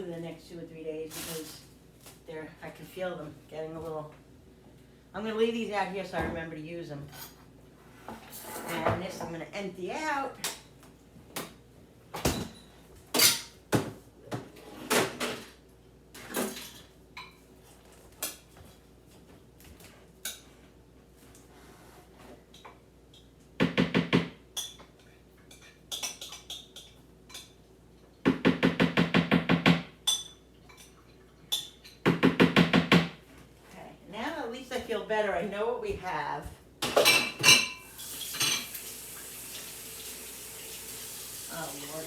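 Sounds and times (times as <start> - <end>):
dishes knocking and clinking: 36.8 - 38.7.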